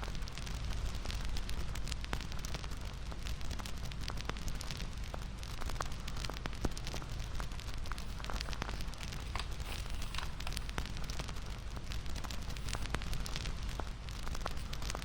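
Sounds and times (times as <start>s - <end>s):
bonfire rumble with pops and snaps: 0.0s - 15.0s.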